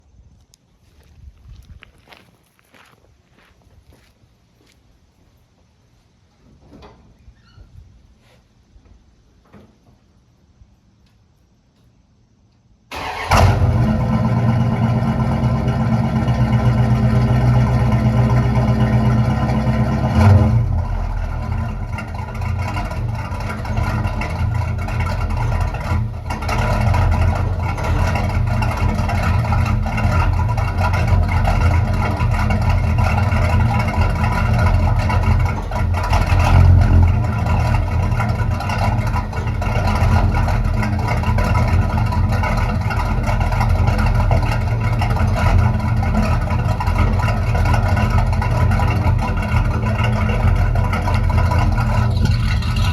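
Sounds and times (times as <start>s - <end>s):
car engine starting and idling: 12.9s - 52.9s.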